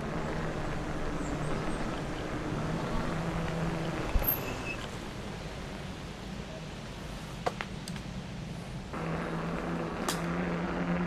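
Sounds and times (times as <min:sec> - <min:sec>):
e-bike motor hum: 0:00.0 - 0:06.0, 0:08.9 - 0:11.0
rolling and wind noise: 0:00.0 - 0:11.0.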